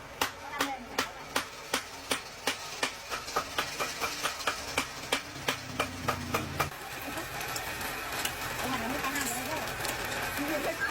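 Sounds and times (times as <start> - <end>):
rapid sharp knocks or chops: 0.2 - 6.8.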